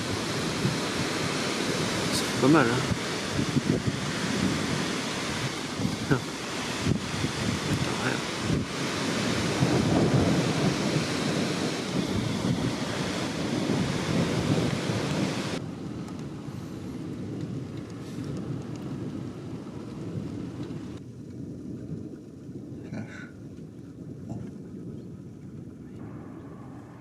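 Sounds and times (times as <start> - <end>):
hiss: 0.0 - 15.6
wind buffeting microphone: 0.0 - 27.0
low rumble: 9.6 - 15.2, 25.8 - 27.0.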